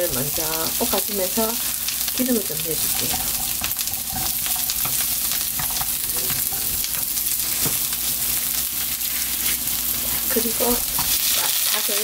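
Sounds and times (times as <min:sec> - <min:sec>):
vegetables sizzling in hot oil: 0:00.0 - 0:12.0
wooden spatula scraping and tapping: 0:02.8 - 0:07.8.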